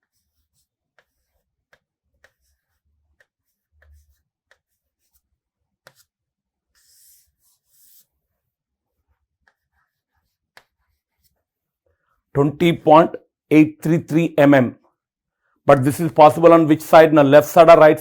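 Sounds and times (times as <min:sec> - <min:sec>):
pen writing taps and scratches: 0:00.0 - 0:08.1, 0:08.8 - 0:11.6.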